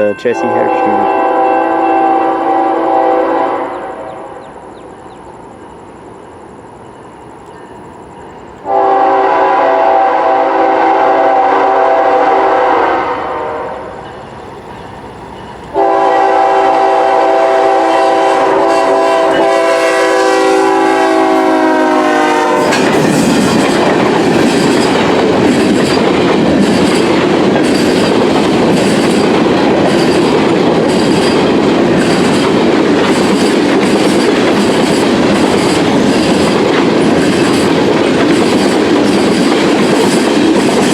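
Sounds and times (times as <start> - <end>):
train wheels rumbling on rails: 0.0 - 40.9
locomotive air horn blasts: 0.4 - 4.3, 8.7 - 13.9, 15.8 - 22.7
clickety-clack of rail joints: 14.0 - 15.9, 22.6 - 40.9.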